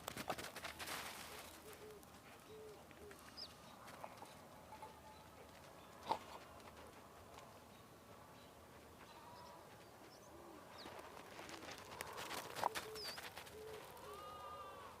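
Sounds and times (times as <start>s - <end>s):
low animal calls: 12.8s - 15.0s.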